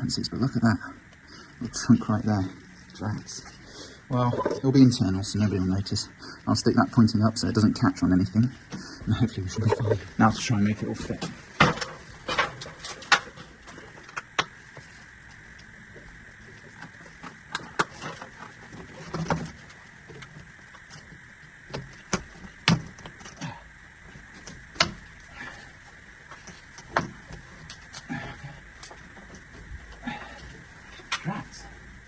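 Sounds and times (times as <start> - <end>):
rain hiss: 2.4 - 7.8.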